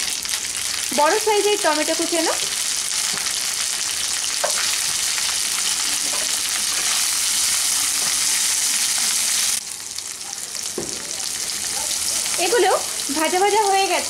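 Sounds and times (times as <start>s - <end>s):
vegetables sizzling in oil: 0.0s - 14.0s
spatula stirring in pan: 4.4s - 9.4s.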